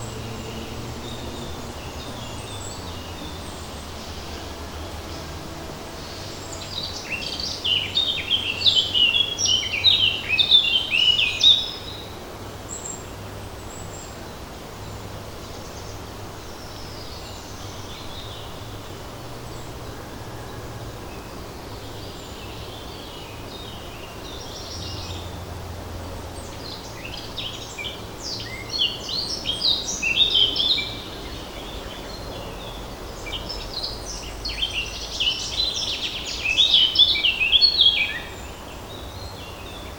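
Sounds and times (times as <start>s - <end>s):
light wind in leaves: 0.0s - 39.9s
songbird twittering: 26.4s - 39.9s.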